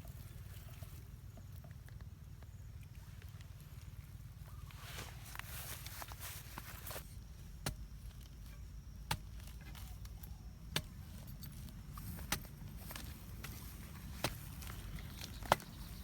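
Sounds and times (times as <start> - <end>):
digging tool striking ground: 6.6 - 16.0
steady low rumble: 7.0 - 16.0.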